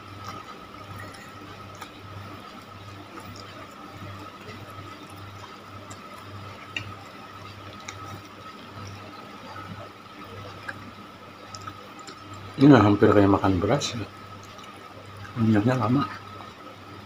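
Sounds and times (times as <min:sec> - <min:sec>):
close-up chewing: 0:00.0 - 0:12.6, 0:14.3 - 0:15.4
faint steady hum: 0:00.0 - 0:17.0.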